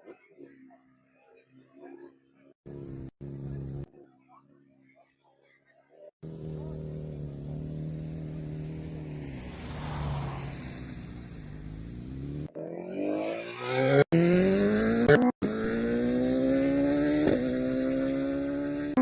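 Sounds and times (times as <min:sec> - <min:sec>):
motorcycle engine accelerating: 0:02.6 - 0:03.9, 0:06.2 - 0:19.0.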